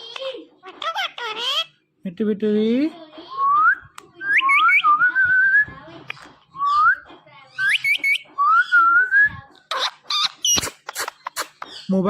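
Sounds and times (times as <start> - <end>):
parakeet whistling: 3.6 - 5.7, 6.6 - 11.9.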